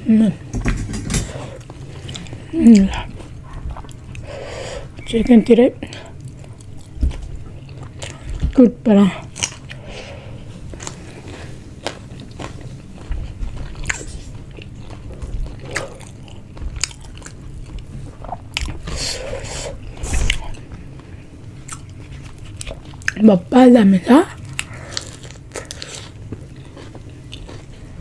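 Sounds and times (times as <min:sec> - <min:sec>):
chewing and biting food: 0:10.6 - 0:19.1, 0:20.2 - 0:23.2, 0:24.4 - 0:28.0.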